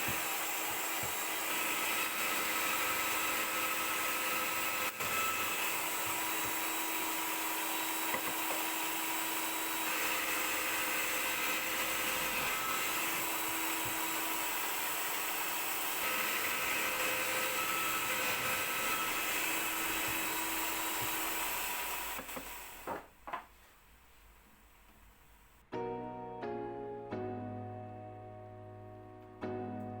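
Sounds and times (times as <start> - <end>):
electric power tool whirring: 0.0 - 23.0.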